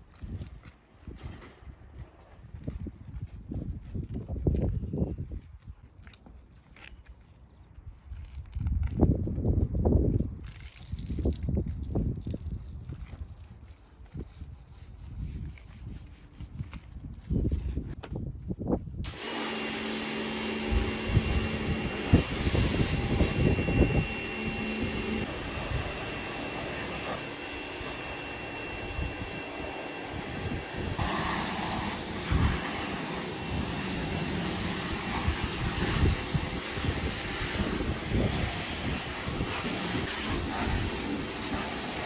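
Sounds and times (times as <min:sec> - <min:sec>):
pressure washer spray hissing: 0:19.1 - 0:42.0.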